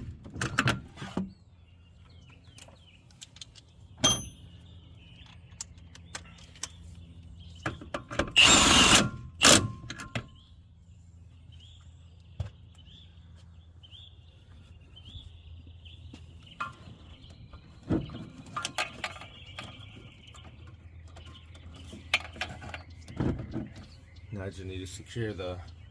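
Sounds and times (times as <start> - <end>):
birds chirping faintly: 0.4 - 9.0, 10.0 - 25.9
power tool bursts: 8.4 - 9.7.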